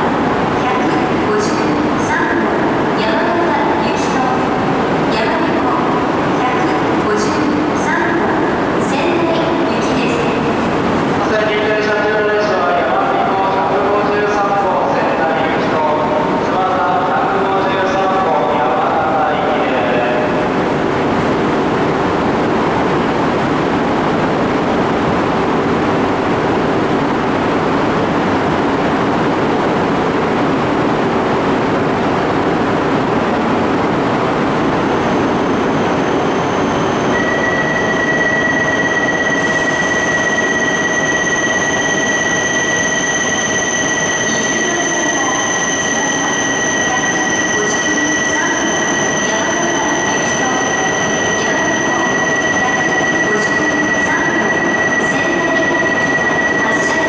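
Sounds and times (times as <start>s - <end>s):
train wheels rushing on rail: 0.0s - 13.6s
high wheel squeal: 35.6s - 57.0s.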